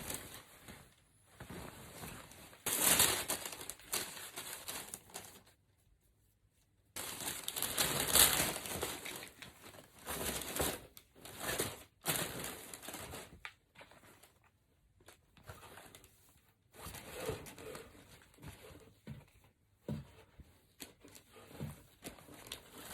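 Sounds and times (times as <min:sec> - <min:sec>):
packaging crinkling and tearing: 0:02.7 - 0:05.4, 0:07.0 - 0:09.4.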